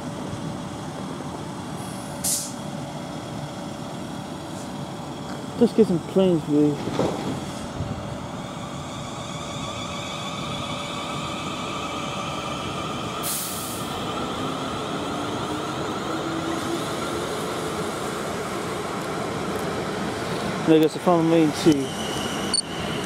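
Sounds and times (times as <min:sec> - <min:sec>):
train wheels rumbling on rail: 0:00.0 - 0:23.0
air hiss: 0:01.8 - 0:02.6, 0:13.2 - 0:14.0.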